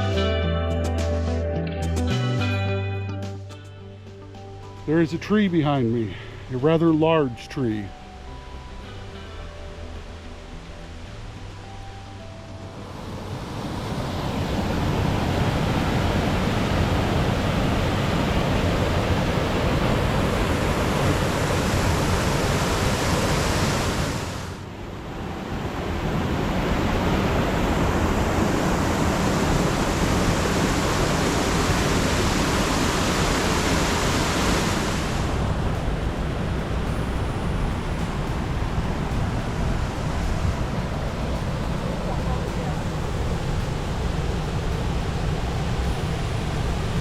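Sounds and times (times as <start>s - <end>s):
rushing water roar: 4.8s - 47.0s.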